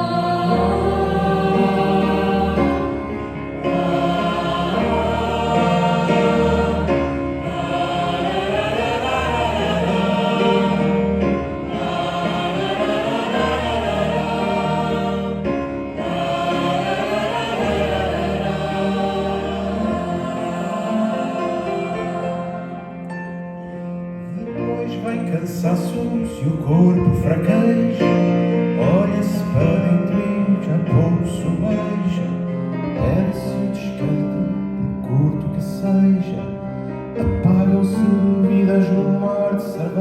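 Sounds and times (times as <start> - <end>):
choir singing held chords: 0.0 - 25.2.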